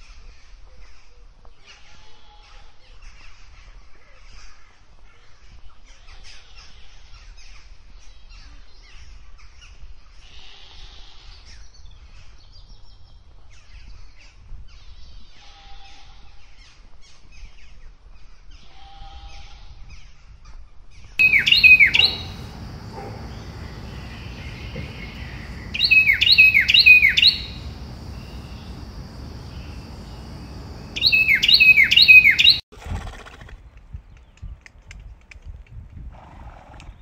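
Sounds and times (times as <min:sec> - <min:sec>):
bird calling downward notes: 0:21.2 - 0:32.6
faint background noise: 0:21.2 - 0:32.6.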